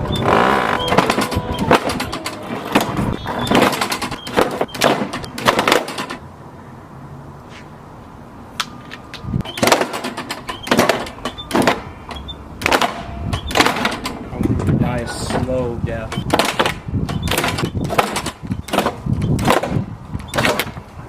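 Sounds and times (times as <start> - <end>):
small squeaks: 0.0 - 5.4, 9.4 - 12.4, 13.2 - 13.7, 16.1 - 16.4, 17.1 - 19.4.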